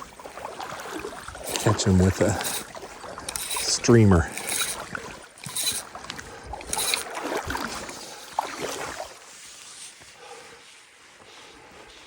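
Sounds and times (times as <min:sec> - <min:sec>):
water sloshing: 0:00.0 - 0:09.4
water lapping: 0:00.0 - 0:10.6.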